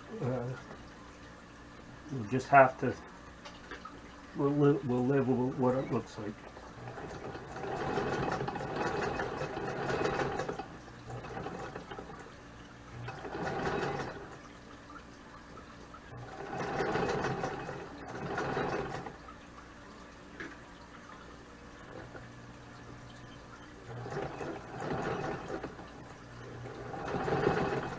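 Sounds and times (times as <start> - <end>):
sewing machine stitching: 6.8 - 12.3, 12.9 - 14.4, 16.1 - 19.2, 21.8 - 22.3, 23.3 - 27.9.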